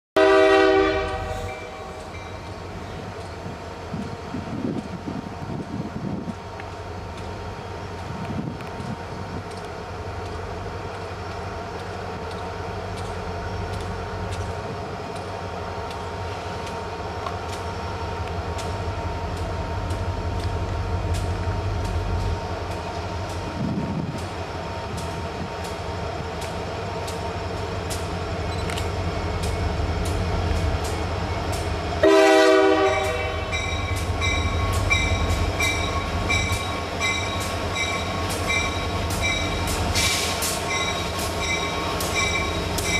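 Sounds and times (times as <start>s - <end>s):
train horn blast: 0.2s - 2.0s, 32.0s - 33.8s
train rumbling: 0.2s - 42.9s.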